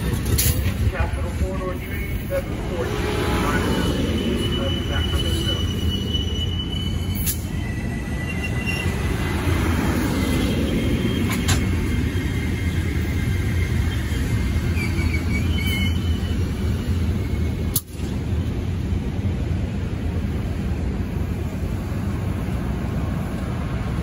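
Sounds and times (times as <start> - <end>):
train wheels rumbling on rails: 0.0 - 24.0
high wheel squeals: 3.1 - 9.3, 10.3 - 17.7.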